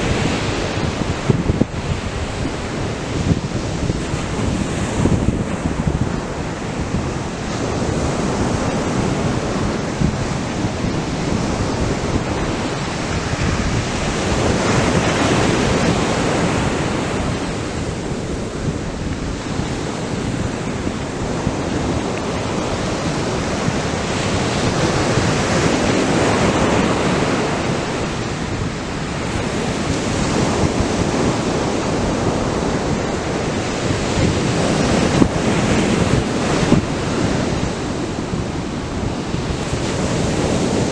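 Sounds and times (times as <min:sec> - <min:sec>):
surf waves breaking: 0:00.0 - 0:40.9.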